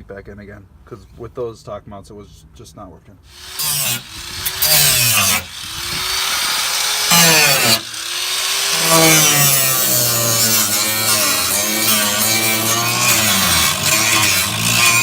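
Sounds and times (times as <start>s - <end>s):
angle grinder grinding metal: 3.3s - 15.0s.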